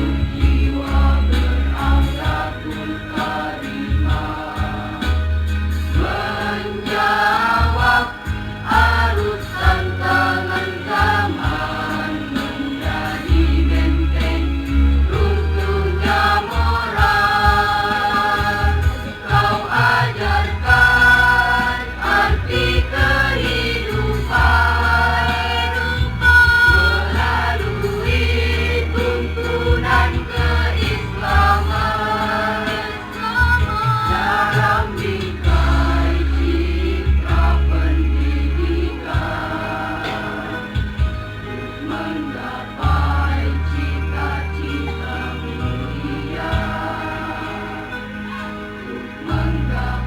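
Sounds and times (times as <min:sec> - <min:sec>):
school choir singing a hymn: 0:00.0 - 0:50.0
steady low tone: 0:00.0 - 0:50.0.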